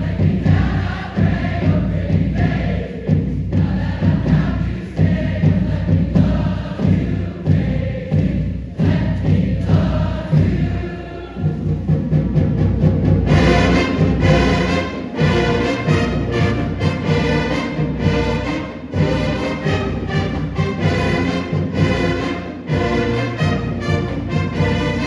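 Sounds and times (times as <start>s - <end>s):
choir singing: 0.0s - 12.3s, 13.1s - 25.0s
loud music: 13.3s - 25.0s.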